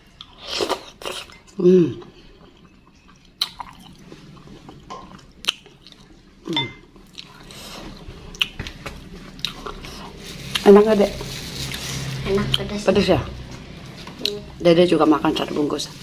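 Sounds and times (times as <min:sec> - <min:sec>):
wet chewing and mouth noises: 0:00.1 - 0:06.2, 0:07.0 - 0:10.8.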